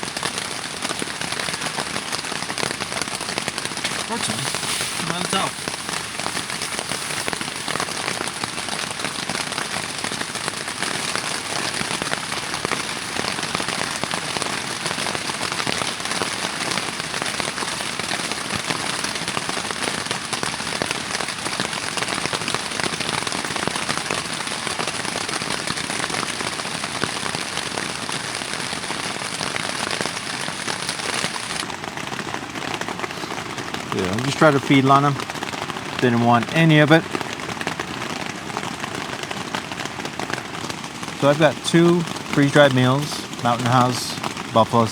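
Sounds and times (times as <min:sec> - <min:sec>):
rain falling: 0:00.0 - 0:44.9.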